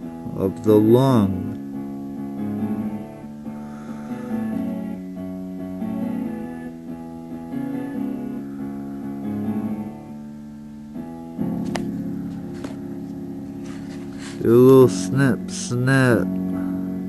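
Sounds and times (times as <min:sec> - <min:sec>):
plucked guitar-like melody: 0:04.4 - 0:16.7.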